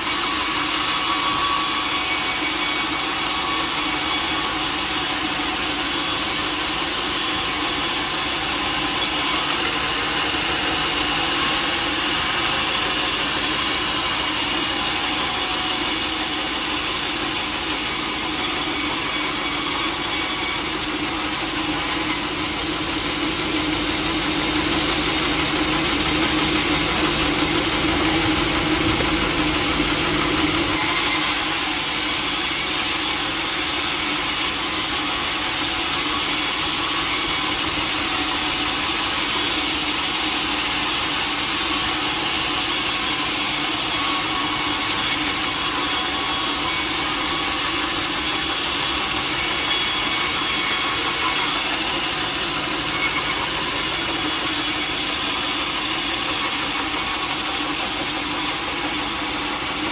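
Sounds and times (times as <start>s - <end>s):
saw blade cutting log: 0.0s - 59.9s
engine running: 22.4s - 30.7s.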